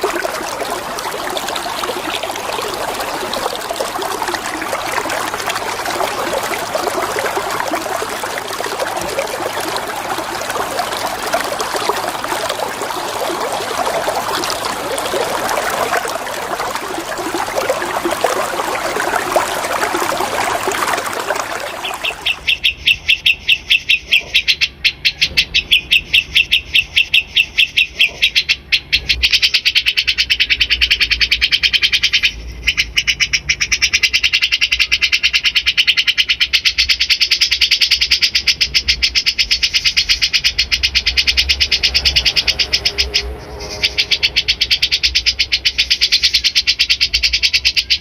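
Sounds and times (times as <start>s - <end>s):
flowing water rushing: 0.0s - 22.6s.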